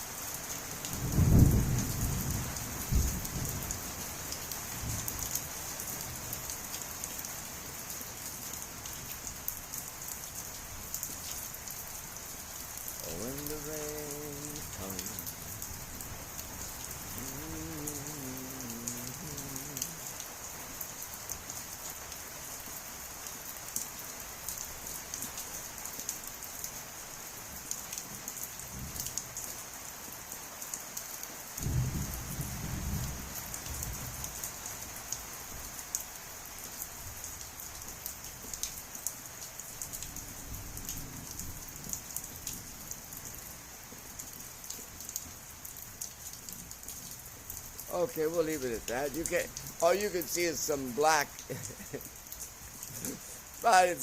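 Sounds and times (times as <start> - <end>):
heavy rain falling: 0.0 - 54.0
rumble of thunder: 1.0 - 3.8, 31.6 - 34.2.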